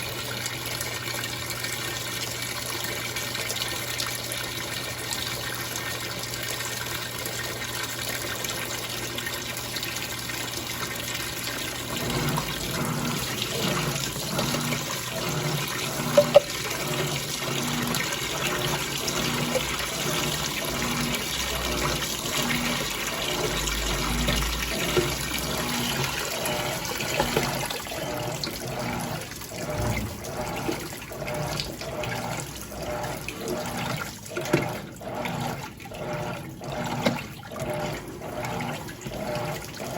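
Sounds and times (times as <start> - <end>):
washing machine running: 0.0 - 39.9
water sloshing in tub: 0.0 - 39.9.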